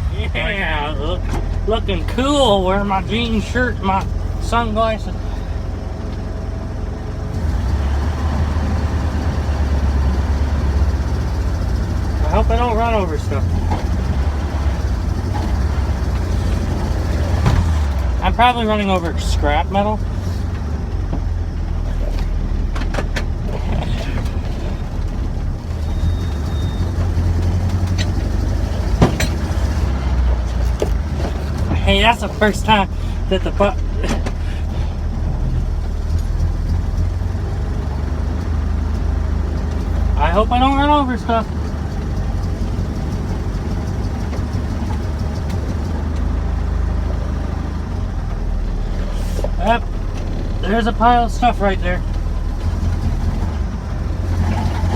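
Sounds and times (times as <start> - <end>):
truck engine rumbling: 0.0 - 54.9
sharp knocks and rattles: 13.4 - 18.2, 20.1 - 32.8.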